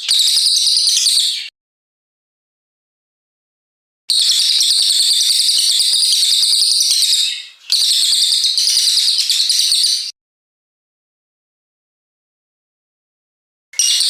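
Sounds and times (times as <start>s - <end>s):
songbird singing a rapid trill: 4.2s - 10.1s.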